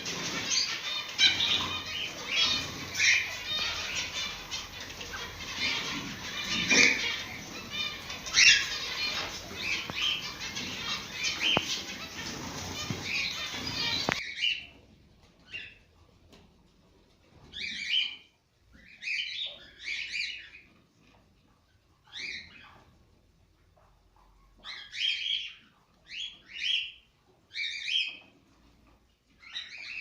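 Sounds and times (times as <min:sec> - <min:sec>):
busy rustling noise: 0:00.0 - 0:14.2
cockatiels chirping and chattering: 0:00.0 - 0:14.8, 0:15.4 - 0:15.9, 0:17.3 - 0:23.0, 0:23.8 - 0:30.0.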